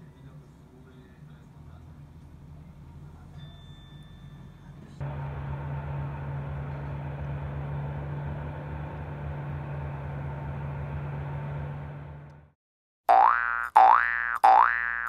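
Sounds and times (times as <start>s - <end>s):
low engine drone: 4.8s - 12.6s.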